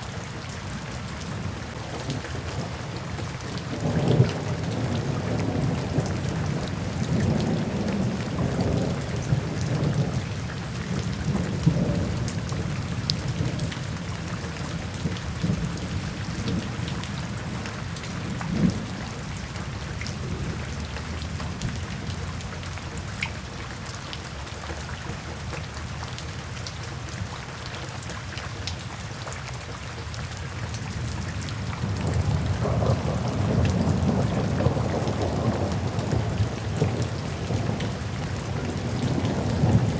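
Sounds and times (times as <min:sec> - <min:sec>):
steady rain: 0:00.0 - 0:39.9
raindrops ticking: 0:00.4 - 0:39.9
thunder rumbling: 0:31.8 - 0:39.9.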